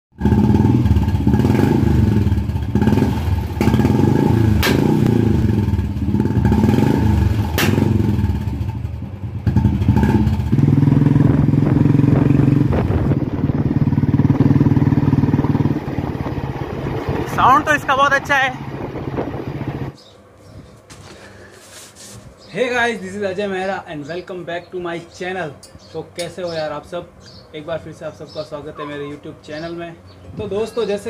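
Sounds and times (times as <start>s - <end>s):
motorcycle engine revving: 0.1s - 20.0s
exhaust pops: 0.2s - 8.7s.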